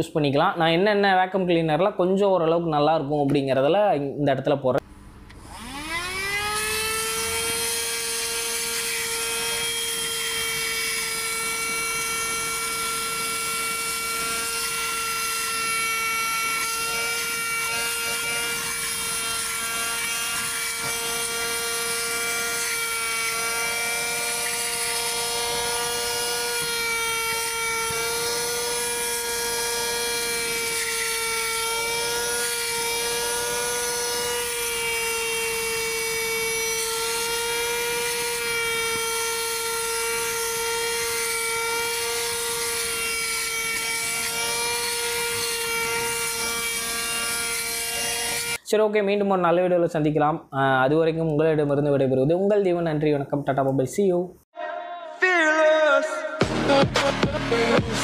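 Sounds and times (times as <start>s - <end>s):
handheld vacuum cleaner whine: 5.3s - 48.6s.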